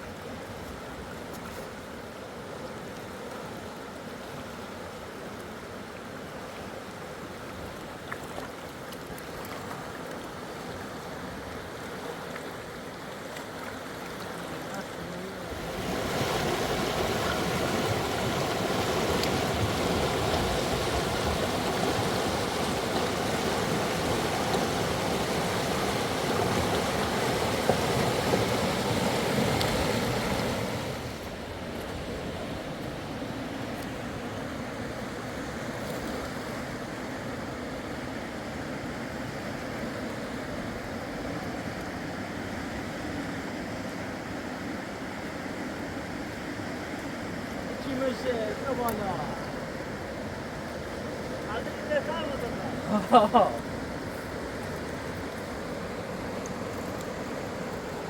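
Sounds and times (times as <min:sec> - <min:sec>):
rushing river water: 0:00.0 - 0:58.0.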